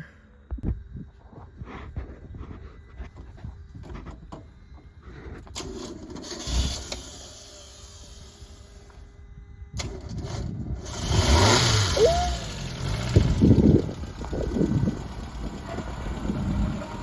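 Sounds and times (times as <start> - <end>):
car engine cranking and revving: 5.6 - 8.8, 9.8 - 17.0.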